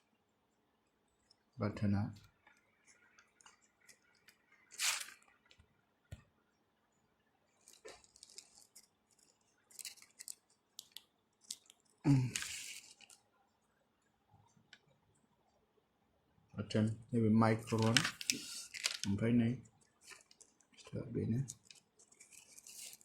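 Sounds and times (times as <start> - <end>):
short hissy bursts: 4.8 - 5.2
earphone handling clicks and rustles: 17.7 - 19.2.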